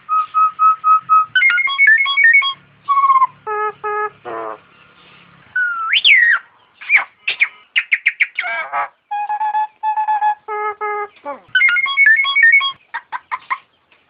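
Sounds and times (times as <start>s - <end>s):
myna singing whistles: 0.0s - 3.4s, 5.6s - 12.8s.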